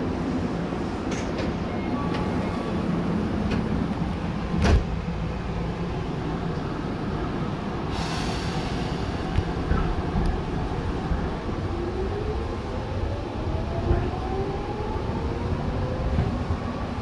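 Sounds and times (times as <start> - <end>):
train wheels rumbling: 0.0 - 17.0
air hiss: 7.9 - 9.3.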